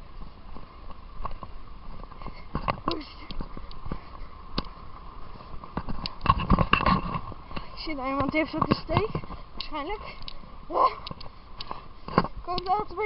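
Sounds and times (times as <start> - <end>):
running footsteps on track: 0.0 - 13.0
hard breathing: 2.1 - 4.6, 7.3 - 7.8, 9.1 - 12.4.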